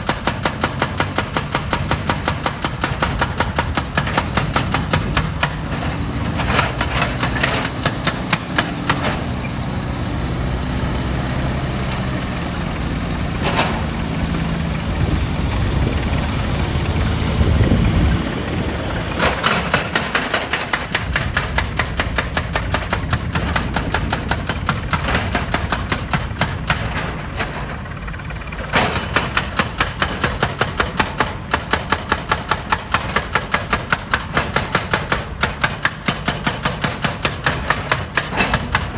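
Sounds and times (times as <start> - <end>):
diesel engine running: 0.8 - 29.0.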